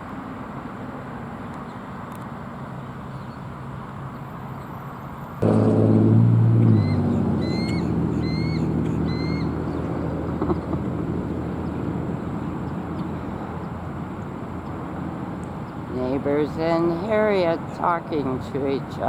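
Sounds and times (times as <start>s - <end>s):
low engine hum: 5.3s - 19.0s
eagle calls: 6.7s - 10.8s.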